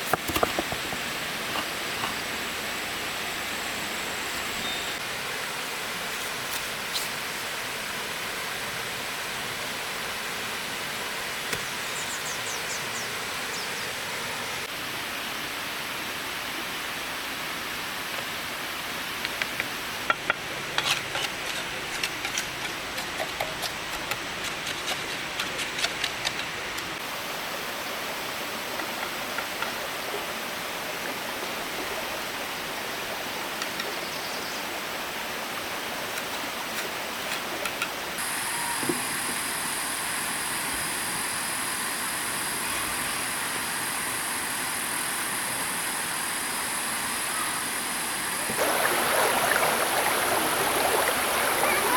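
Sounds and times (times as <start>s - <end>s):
stream water rushing: 0.0s - 20.1s, 34.6s - 51.9s.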